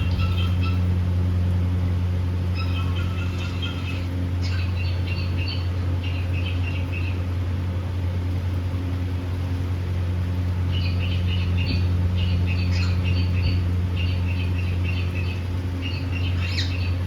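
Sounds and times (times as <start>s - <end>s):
steady low hum: 0.0s - 17.0s
cockatiel chirping: 2.6s - 6.8s, 10.8s - 17.0s.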